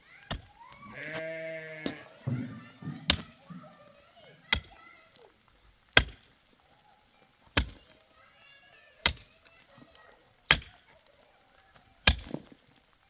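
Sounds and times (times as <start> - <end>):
sharp knocks: 1.9 - 3.8.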